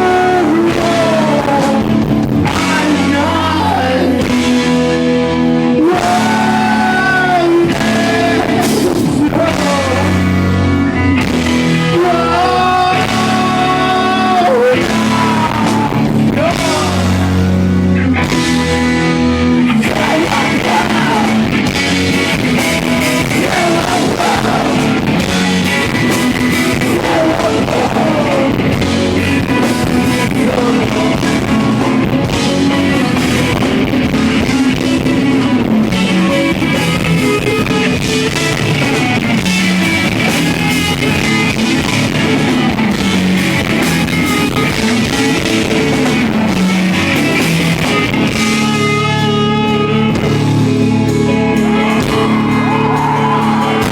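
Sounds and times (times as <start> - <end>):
person singing: 0.0 - 4.9, 5.7 - 10.5, 11.8 - 17.5, 19.7 - 22.0, 23.0 - 25.4, 26.1 - 36.6
drums: 0.0 - 53.9
electric guitars: 0.0 - 53.9.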